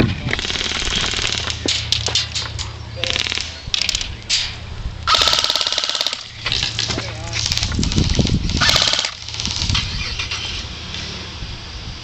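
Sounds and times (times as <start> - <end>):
airsoft gun firing bursts: 5.1 - 6.3, 7.4 - 9.8.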